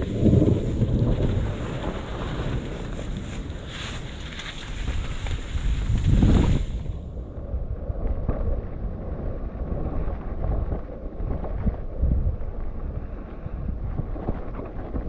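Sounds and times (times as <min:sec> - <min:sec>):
bike tyres rumbling on trail: 0:00.0 - 0:15.0
wind buffeting microphone: 0:00.0 - 0:15.0.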